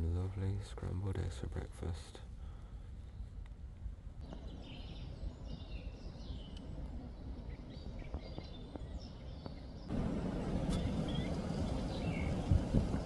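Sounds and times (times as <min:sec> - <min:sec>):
low steady rumble: 0:02.4 - 0:13.0
small birds chirping: 0:04.2 - 0:13.0.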